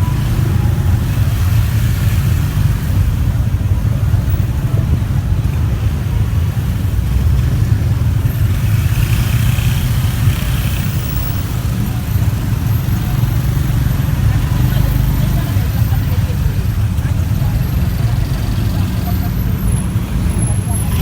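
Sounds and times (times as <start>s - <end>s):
motorbike engine rumble: 0.0s - 21.0s
road noise: 0.0s - 21.0s.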